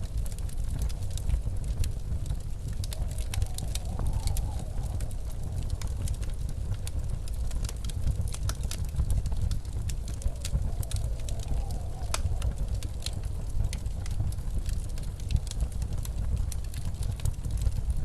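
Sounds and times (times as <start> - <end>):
blizzard wind rumble: 0.0 - 18.0
faint wavering wind howl: 0.0 - 18.0
wood fire crackling: 0.0 - 18.0.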